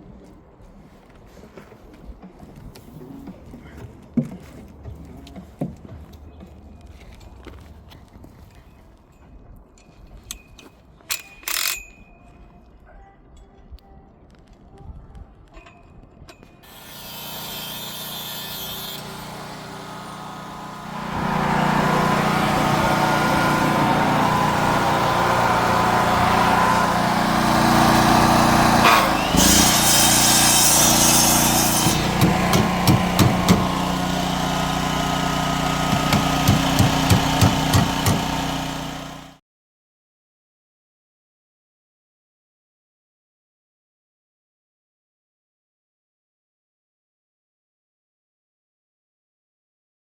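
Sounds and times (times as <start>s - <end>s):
machine running: 16.7s - 39.4s
sharp knocks: 31.6s - 33.8s, 35.9s - 38.4s.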